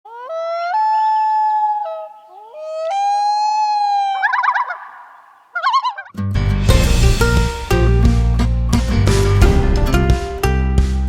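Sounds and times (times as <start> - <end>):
dog howling: 0.1 - 6.1
dog yipping: 0.1 - 6.1.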